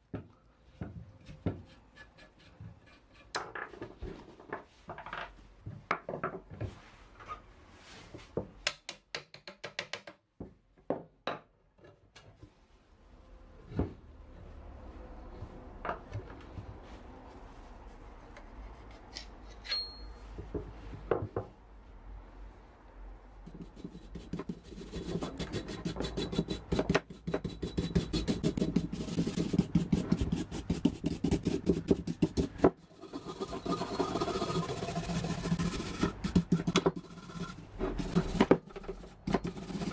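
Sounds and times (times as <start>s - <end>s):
fast rasping scrape of rust: 1.3s - 3.4s, 23.6s - 39.9s.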